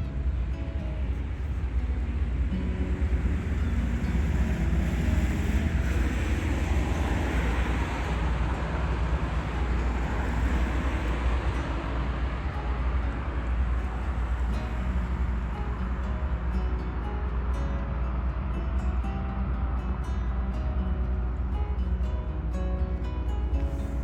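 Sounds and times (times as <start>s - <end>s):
boat engine rumbling: 0.0s - 17.2s.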